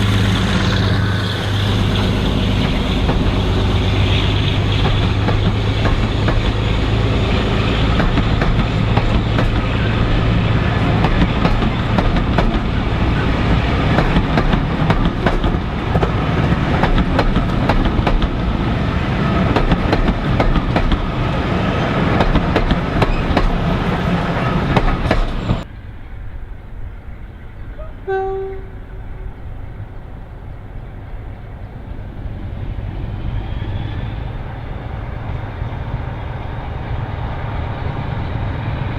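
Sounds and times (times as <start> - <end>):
wheels clacking over rail joints: 0.0 - 25.9
diesel locomotive engine: 0.0 - 38.9
short horn blast: 27.8 - 29.4.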